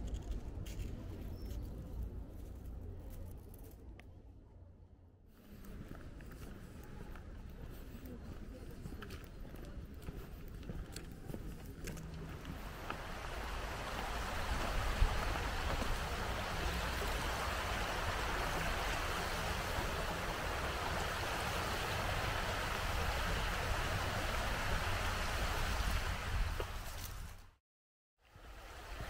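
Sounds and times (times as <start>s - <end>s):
river rushing over rocks: 12.5s - 26.7s.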